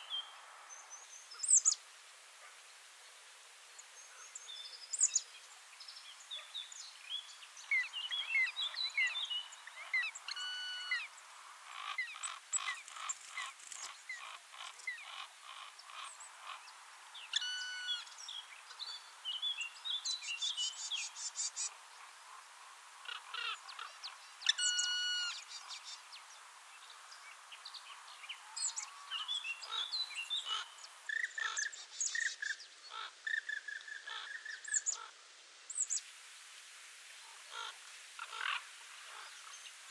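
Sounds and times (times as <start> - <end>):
birds chirping: 23.0 - 35.1
loud bird call: 24.5 - 25.4.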